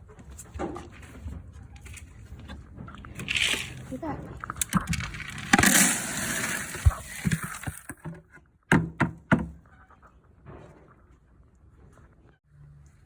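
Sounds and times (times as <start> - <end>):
horse feed poured into bucket: 3.2 - 8.0
sharp knocks: 8.1 - 9.6.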